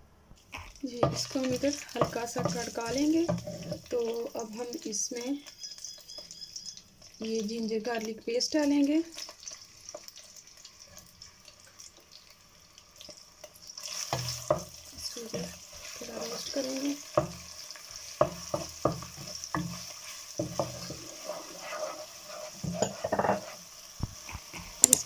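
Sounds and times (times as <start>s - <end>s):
paste sizzling in hot oil: 0.4s - 25.0s
wooden spoon scraping a pan: 0.6s - 4.4s, 13.8s - 24.9s.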